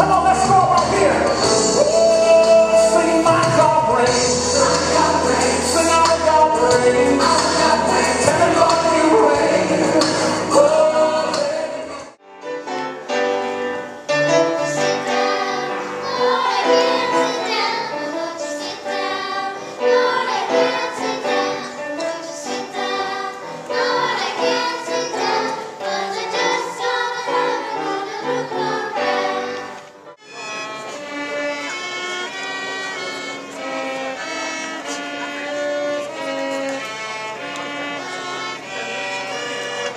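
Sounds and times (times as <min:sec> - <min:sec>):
choir singing with music: 0:00.0 - 0:39.9.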